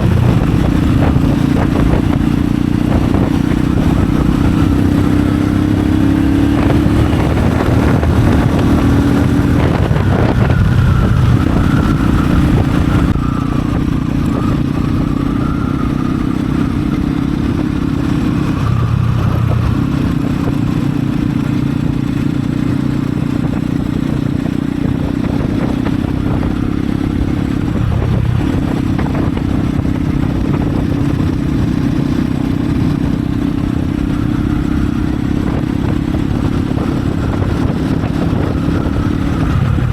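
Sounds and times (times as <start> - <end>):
motorcycle exhaust running: 0.0 - 39.9.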